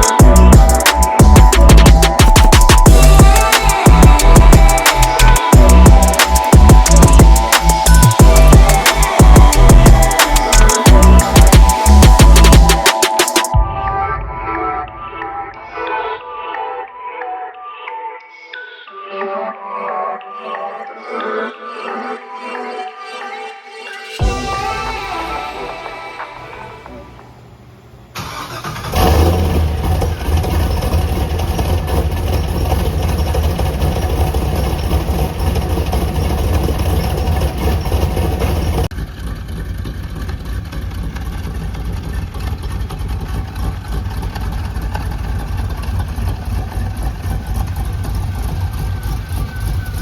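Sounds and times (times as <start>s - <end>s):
car engine idling: 0.0s - 13.4s, 26.6s - 50.0s
engine cranking: 0.0s - 13.6s, 28.2s - 50.0s.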